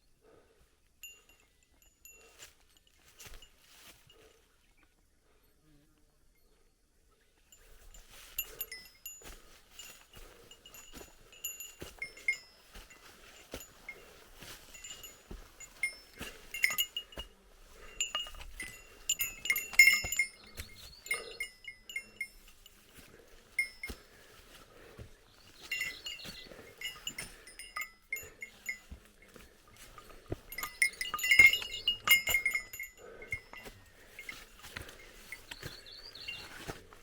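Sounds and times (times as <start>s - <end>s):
bear bell jingling: 0.2s - 4.5s, 7.5s - 37.0s.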